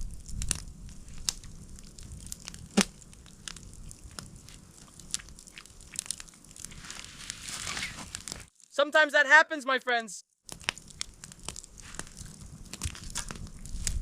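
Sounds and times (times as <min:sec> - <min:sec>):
sharp crack: 0:02.4 - 0:03.0
crunches and clicks of eating: 0:10.5 - 0:14.0.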